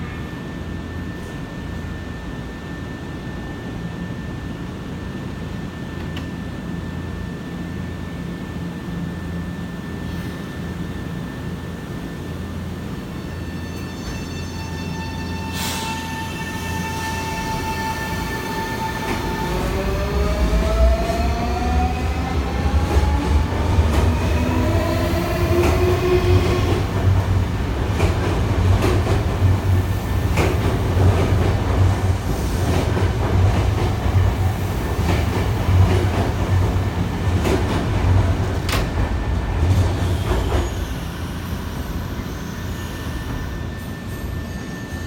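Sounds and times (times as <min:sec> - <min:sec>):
low train rumble: 0:00.0 - 0:45.0.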